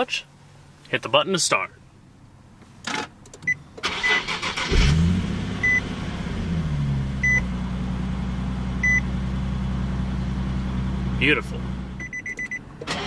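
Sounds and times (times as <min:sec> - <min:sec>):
car engine starting and idling: 0:02.9 - 0:13.0.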